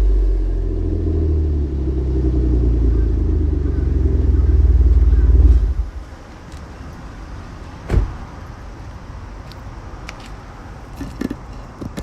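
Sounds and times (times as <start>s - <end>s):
low steady rumble: 0.0s - 6.2s
dull thump: 7.8s - 8.2s.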